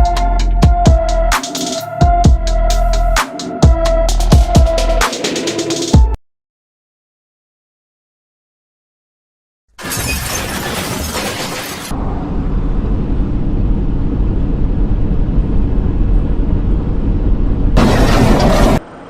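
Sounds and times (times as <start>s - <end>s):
engine and road noise rumble: 0.0s - 6.0s, 11.6s - 19.0s.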